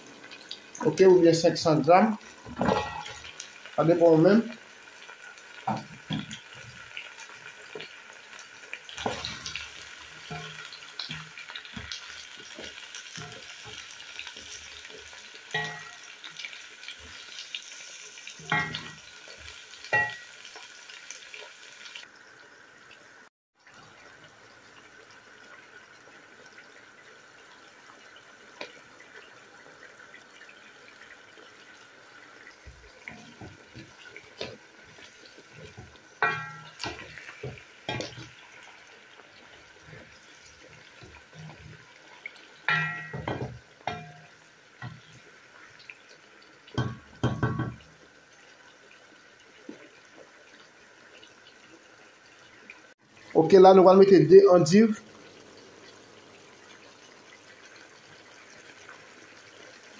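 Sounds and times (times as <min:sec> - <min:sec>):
food sizzling in a pot: 0:00.0 - 0:59.9
wooden spoon knocking a pot: 0:42.7 - 0:44.3, 0:46.8 - 0:47.9.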